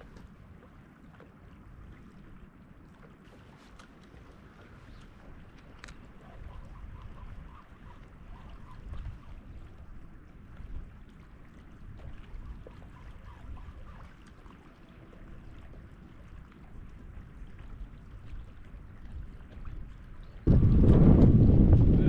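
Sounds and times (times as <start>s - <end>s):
wind buffeting microphone: 4.5s - 14.2s, 15.0s - 22.0s.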